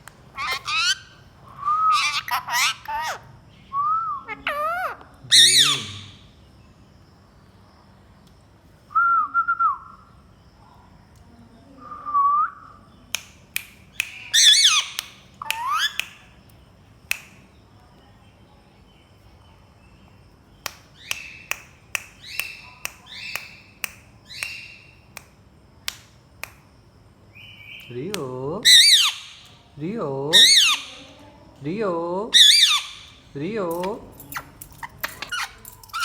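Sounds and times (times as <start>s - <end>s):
parakeets whistling and squawking: 0.4s - 3.2s, 4.2s - 6.2s, 14.4s - 16.0s, 28.7s - 29.4s, 30.4s - 31.0s, 32.4s - 33.1s, 34.4s - 36.0s.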